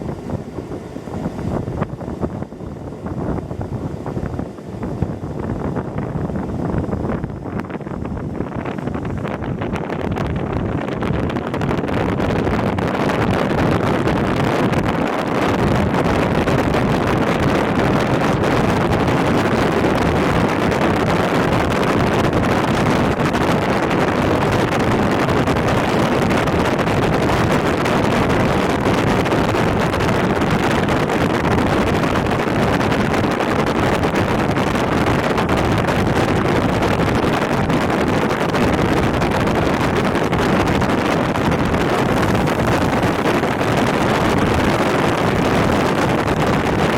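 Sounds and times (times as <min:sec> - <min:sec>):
rushing air: 0:00.0 - 0:46.9
train wheels rumbling on rail: 0:00.0 - 0:46.9.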